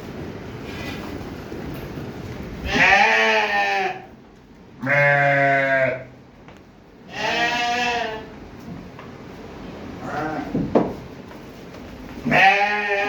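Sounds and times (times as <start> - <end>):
sheep bleating: 2.7 - 4.1, 4.8 - 6.1, 7.1 - 8.3, 12.3 - 13.0.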